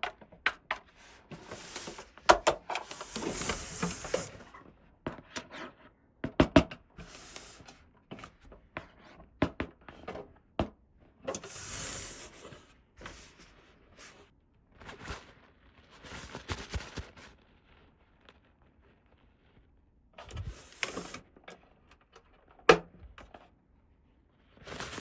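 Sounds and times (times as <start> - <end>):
packaging rustling scrapes: 1.0 - 4.6, 7.0 - 7.8, 24.6 - 25.0.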